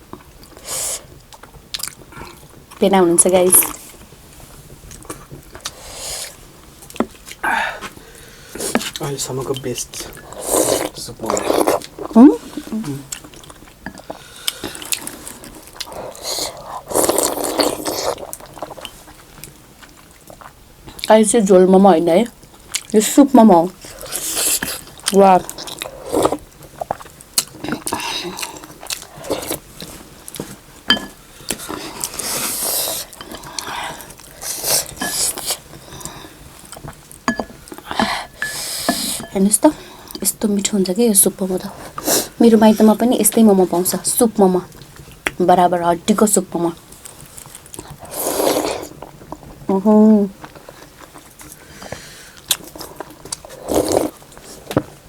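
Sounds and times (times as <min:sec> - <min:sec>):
person slurping soup: 0:10.2 - 0:13.1, 0:31.7 - 0:36.3, 0:37.8 - 0:39.3, 0:48.0 - 0:49.0, 0:51.7 - 0:54.7
spoon clinking against bowl: 0:30.9 - 0:31.2, 0:37.3 - 0:37.6, 0:38.3 - 0:39.4.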